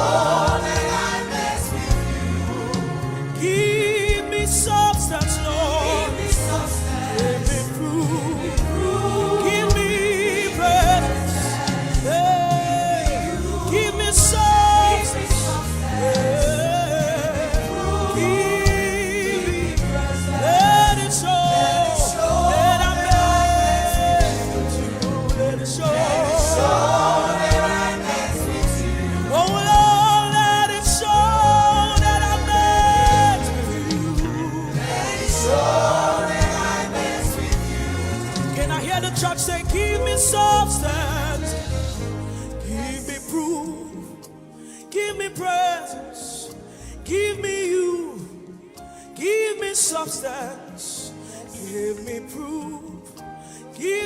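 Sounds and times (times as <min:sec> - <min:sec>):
band with bass and drums: 0:00.0 - 0:42.4
voices singing held notes: 0:00.0 - 0:43.1
low musical accompaniment: 0:00.0 - 0:54.0.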